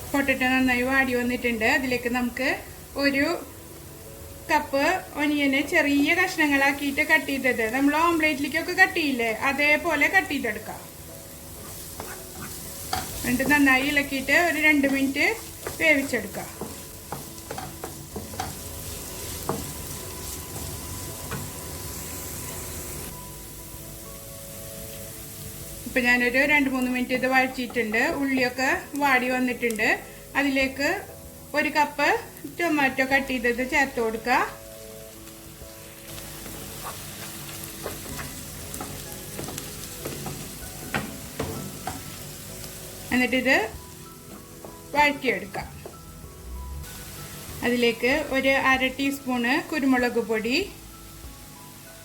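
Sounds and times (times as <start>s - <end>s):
potatoes and onion sizzling in oil: 0.0s - 52.0s
utensil knocking and scraping pan: 11.6s - 13.7s, 14.8s - 18.7s, 36.4s - 42.1s.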